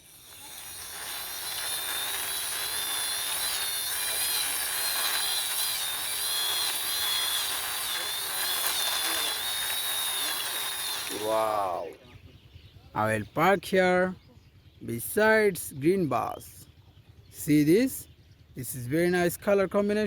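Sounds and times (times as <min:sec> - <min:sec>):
toy jeep wheels whirring: 0:00.0 - 0:11.8.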